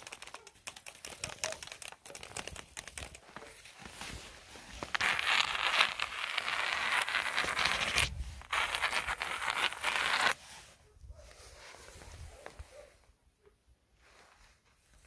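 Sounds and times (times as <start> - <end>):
snow crunching underfoot: 3.2 - 10.7.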